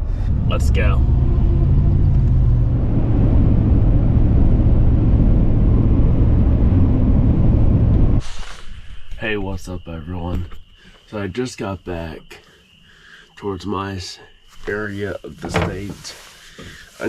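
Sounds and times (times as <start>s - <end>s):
truck engine and road rumble: 0.0s - 8.6s, 14.7s - 17.0s.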